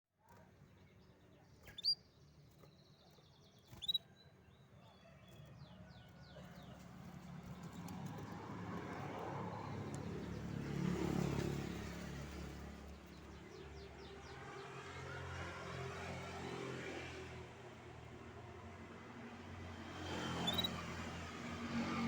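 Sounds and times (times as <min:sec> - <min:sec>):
canary chirping: 0:01.6 - 0:04.2, 0:20.3 - 0:20.8
vehicle engine passing by: 0:06.3 - 0:22.0.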